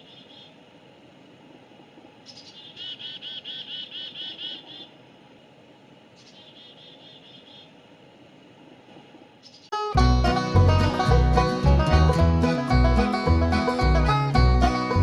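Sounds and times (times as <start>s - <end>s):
bird chirping: 0.0s - 0.6s, 2.2s - 4.9s, 6.2s - 7.7s, 9.4s - 9.8s
faint outdoor background noise: 0.0s - 15.0s.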